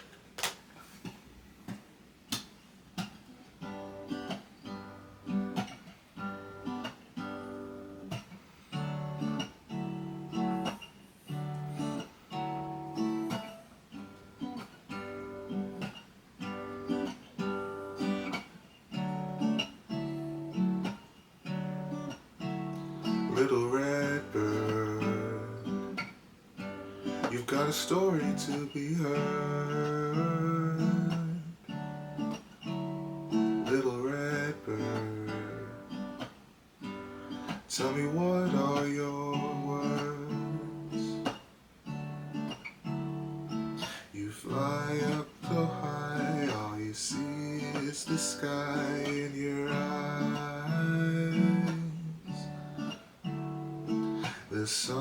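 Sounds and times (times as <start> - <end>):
acoustic guitar plucking and strumming: 0.0 - 55.0.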